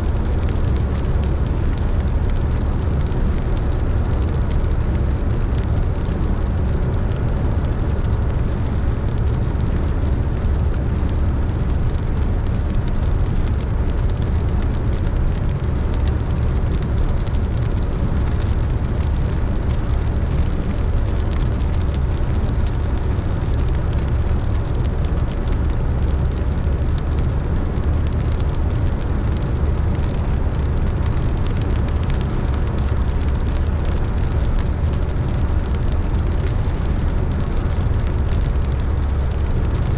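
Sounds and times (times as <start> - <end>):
rain pattering on a car: 0.0 - 39.9
road and engine rumble: 0.0 - 39.9.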